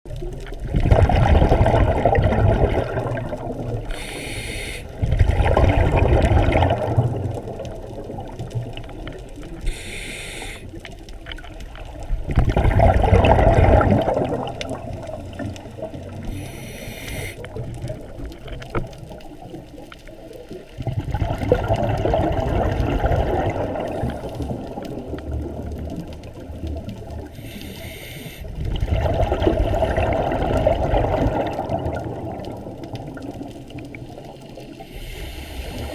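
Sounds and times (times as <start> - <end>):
exhaled bubbles rushing: 0.1 - 4.2, 4.8 - 9.8, 11.0 - 16.5, 17.3 - 27.4, 28.4 - 35.9
regulator hissing inhalation: 3.9 - 5.0, 9.6 - 10.8, 16.3 - 17.5, 27.4 - 28.5, 34.8 - 35.9.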